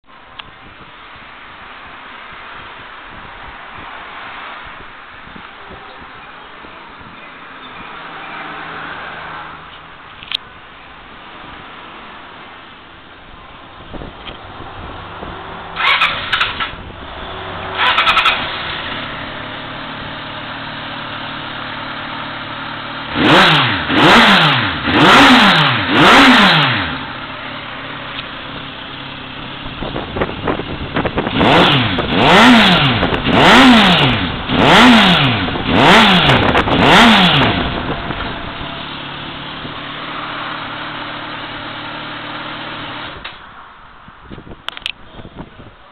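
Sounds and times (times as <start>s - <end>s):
motorcycle engine revving: 13.9s - 43.4s.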